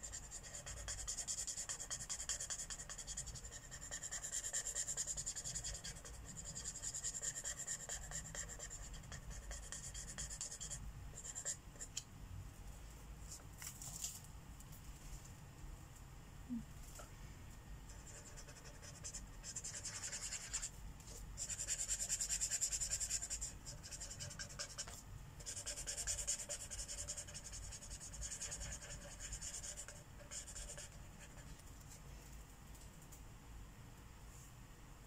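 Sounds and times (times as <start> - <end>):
marker scratching on paper: 0.0 - 11.9, 17.9 - 31.6.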